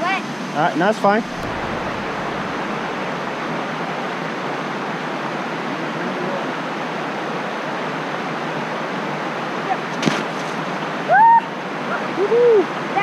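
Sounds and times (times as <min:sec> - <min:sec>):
waterfall rushing: 0:00.8 - 0:05.7.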